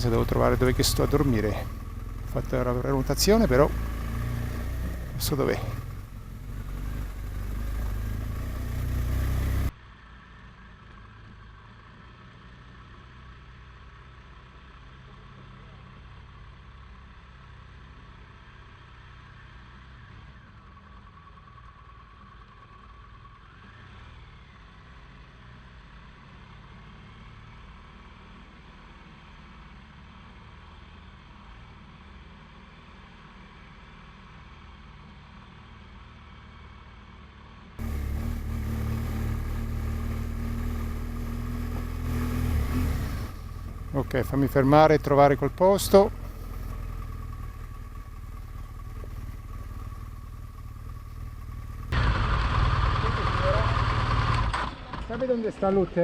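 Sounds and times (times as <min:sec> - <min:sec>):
motorcycle engine running: 0:00.0 - 0:09.7, 0:37.8 - 0:55.5
wind and road noise: 0:00.0 - 0:56.0.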